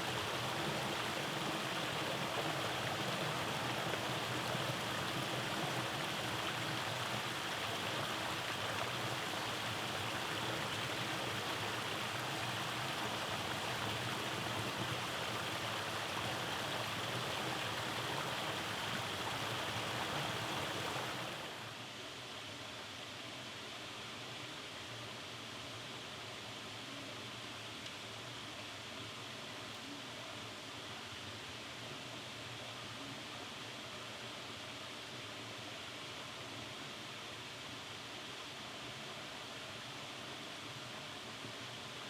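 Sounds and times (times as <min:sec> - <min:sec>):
creek water rushing: 0:00.0 - 0:21.8.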